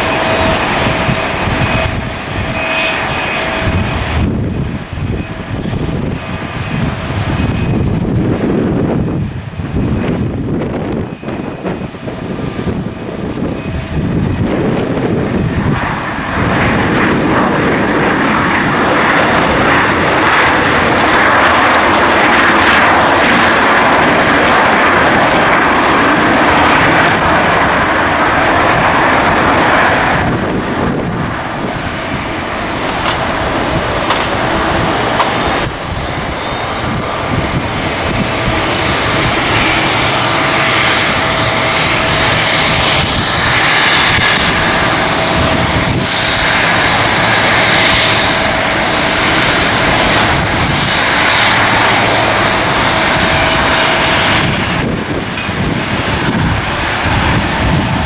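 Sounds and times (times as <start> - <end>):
airliner engines roaring: 0.0 - 58.0
faint rising whine: 29.2 - 55.5.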